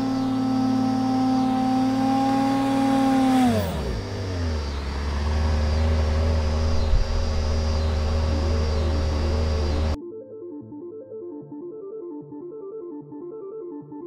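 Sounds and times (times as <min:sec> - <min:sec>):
car engine revving and idling: 0:00.0 - 0:10.0.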